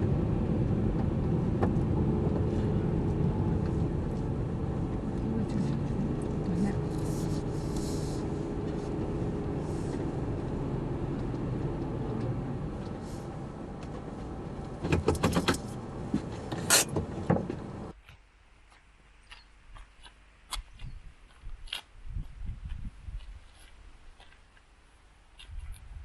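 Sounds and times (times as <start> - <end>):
car engine running: 0.0 - 17.9
sharp clicks and clunks: 13.8 - 17.9.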